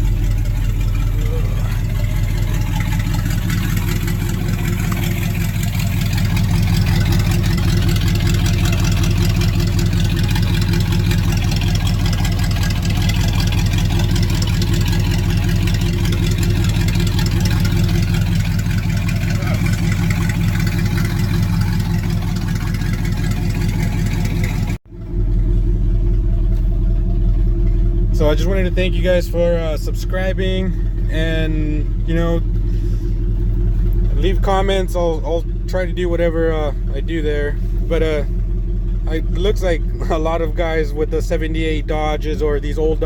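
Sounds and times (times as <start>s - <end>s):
pickup engine idling: 0.0s - 43.0s.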